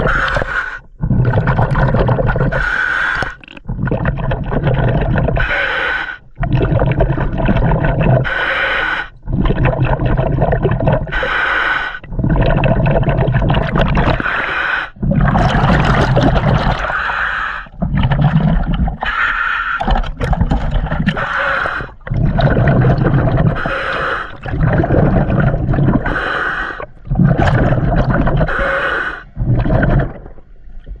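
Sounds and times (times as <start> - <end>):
bubbling exhalations: 0.0 - 31.0
regulator hissing inhalations: 28.5 - 29.3.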